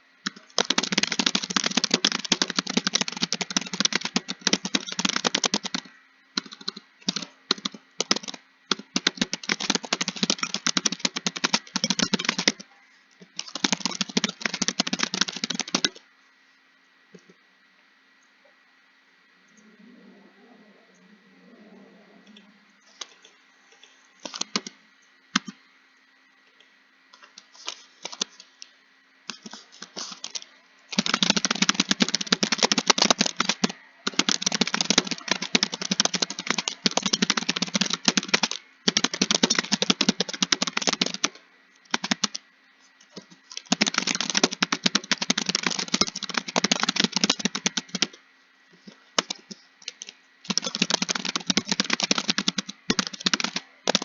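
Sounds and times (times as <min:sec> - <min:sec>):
typing on computer keyboard: 0:00.2 - 0:16.0, 0:22.9 - 0:24.8, 0:25.4 - 0:25.6, 0:27.2 - 0:28.5, 0:29.3 - 0:42.4, 0:43.0 - 0:48.2, 0:48.8 - 0:54.0.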